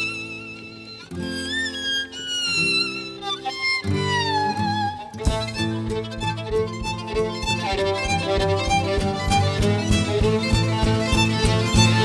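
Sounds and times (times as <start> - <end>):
violin melody: 0.0 - 12.0
steady beat: 5.2 - 12.0.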